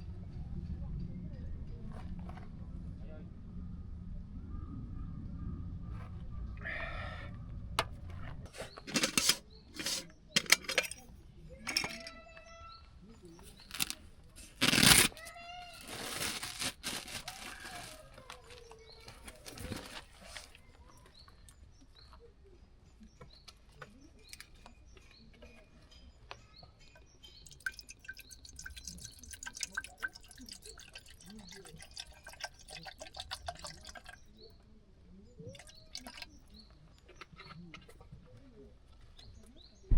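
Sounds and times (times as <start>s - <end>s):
water pouring: 8.8s - 11.0s, 13.5s - 14.0s, 27.4s - 34.3s, 35.5s - 36.4s
metal cookware knocking and clinking: 8.9s - 12.2s.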